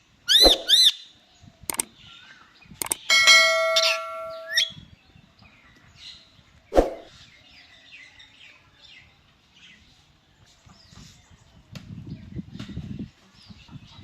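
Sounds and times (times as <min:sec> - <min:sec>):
parrot soft chirps: 0:00.3 - 0:01.0
parrot whistling and squeaking: 0:00.3 - 0:01.0, 0:03.7 - 0:04.8.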